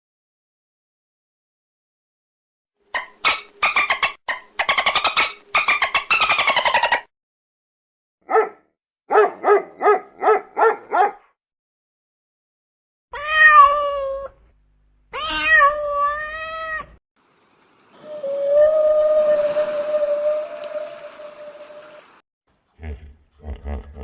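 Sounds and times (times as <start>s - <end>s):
cat meowing: 13.2s - 14.4s, 15.1s - 17.0s.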